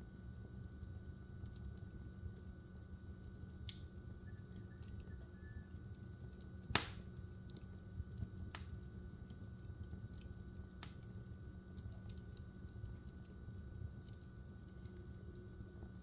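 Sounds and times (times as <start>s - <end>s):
logs crackling in fireplace: 0.0s - 16.0s
fire pops: 3.2s - 16.0s.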